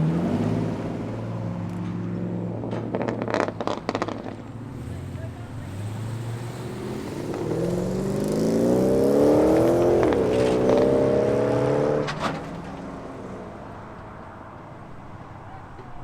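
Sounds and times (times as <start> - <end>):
car engine accelerating: 0.0 - 16.0
exhaust pops: 1.3 - 5.5, 9.3 - 14.3.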